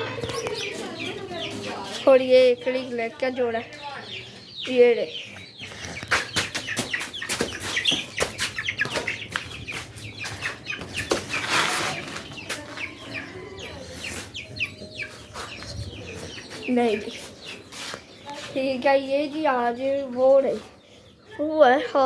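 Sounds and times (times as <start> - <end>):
chickens clucking: 0.0 - 22.0
chicks peeping: 0.0 - 22.0
scuffling: 5.7 - 20.8.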